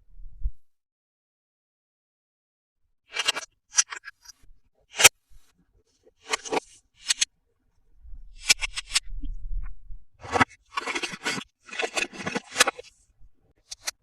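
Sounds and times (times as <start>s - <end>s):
packaging scraping and crinkling: 10.2s - 13.0s.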